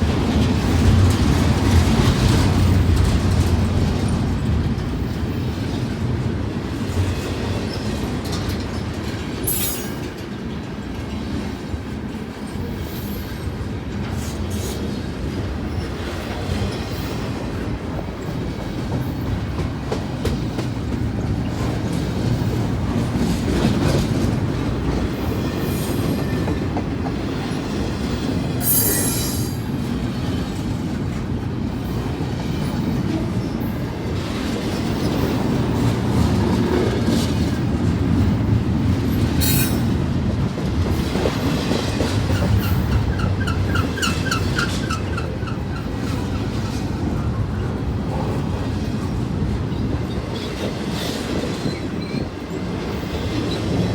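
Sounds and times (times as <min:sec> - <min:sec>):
clickety-clack over rail joints: 0:00.0 - 0:53.9
train wheels rumbling on rails: 0:00.0 - 0:53.9
high wheel squeals: 0:28.6 - 0:29.7.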